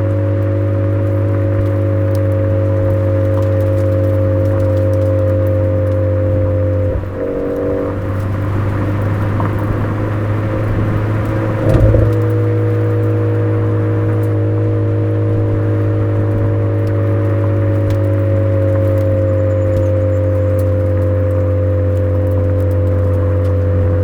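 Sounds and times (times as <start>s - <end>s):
car engine droning: 5.8s - 15.0s.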